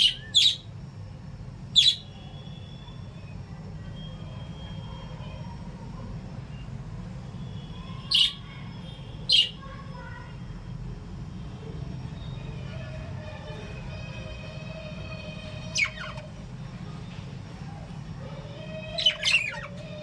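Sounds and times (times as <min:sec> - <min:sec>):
bird shrieks: 0:00.0 - 0:00.6, 0:08.0 - 0:08.6, 0:09.3 - 0:09.6, 0:15.6 - 0:16.2
birds chattering softly: 0:00.0 - 0:20.0.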